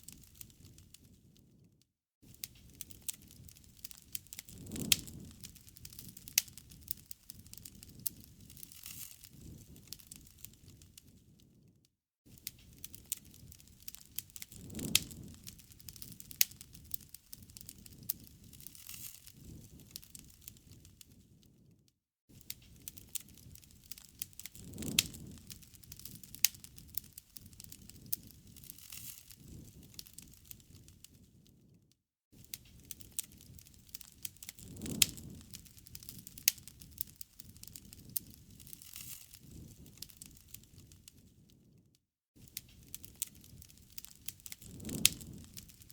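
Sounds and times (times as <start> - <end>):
campfire crackling: 0.0 - 1.2, 2.2 - 11.2, 12.3 - 21.3, 22.4 - 31.7, 32.4 - 41.7, 42.4 - 45.9
low rumble of burning: 0.0 - 45.9
sharp fire pops: 2.2 - 11.4, 12.3 - 21.6, 22.3 - 31.6, 32.4 - 41.7, 42.4 - 45.9.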